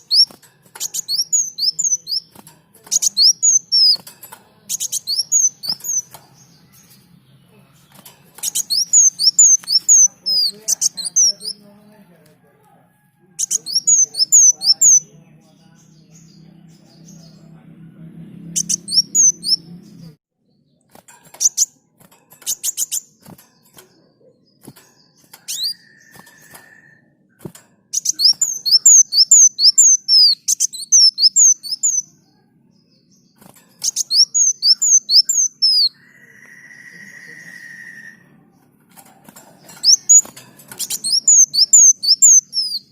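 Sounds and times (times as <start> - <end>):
songbird rapid falling notes: 0.0 - 11.6, 18.3 - 20.1
held whistle-like note: 36.2 - 38.2.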